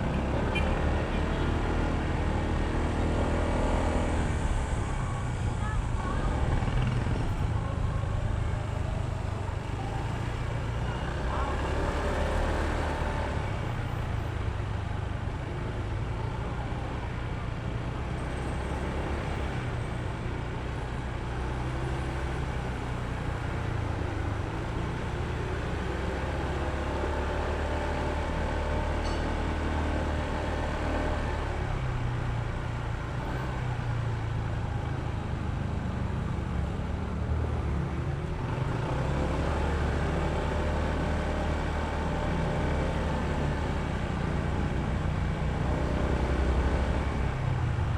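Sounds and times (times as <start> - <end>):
road and traffic noise: 0.0 - 47.9
scooter engine running: 4.8 - 13.1.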